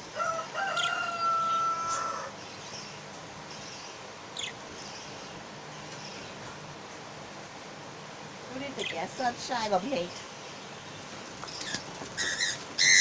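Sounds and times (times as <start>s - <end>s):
long steady bird call: 0.0s - 6.4s.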